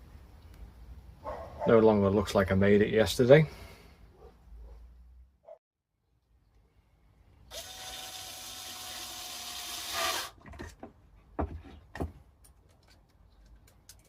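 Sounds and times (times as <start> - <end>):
small power tool running: 7.5 - 10.3
sharp knocks on wood: 10.5 - 12.2.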